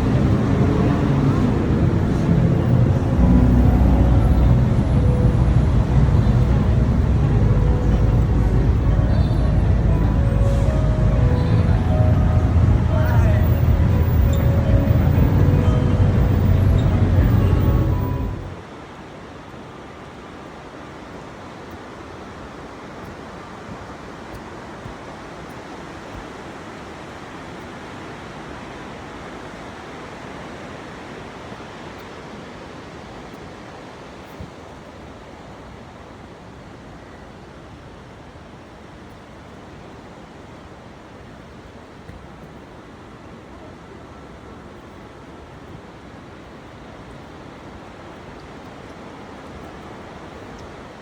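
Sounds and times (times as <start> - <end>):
wind rushing: 0.0 - 18.6
water rushing: 0.0 - 34.2.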